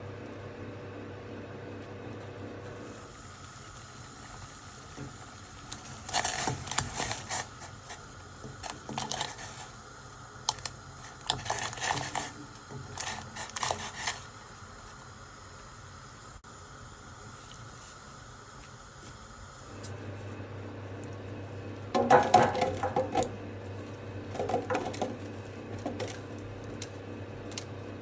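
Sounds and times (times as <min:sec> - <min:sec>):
faint steady hum: 0:00.0 - 0:28.0
crisp clicking and scraping: 0:05.7 - 0:09.8, 0:10.4 - 0:14.3, 0:24.3 - 0:26.9.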